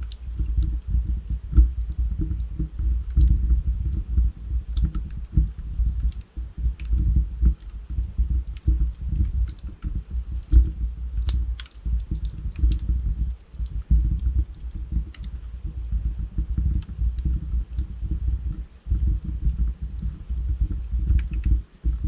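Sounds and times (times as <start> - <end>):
flames fluttering: 0.0 - 22.0
logs crackling and popping: 0.0 - 22.0.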